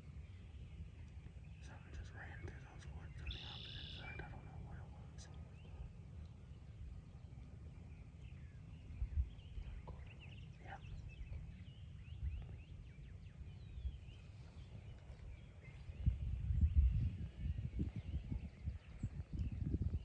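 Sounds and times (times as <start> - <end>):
songbirds chirping: 0.0 - 20.0
low rumble: 4.3 - 20.0.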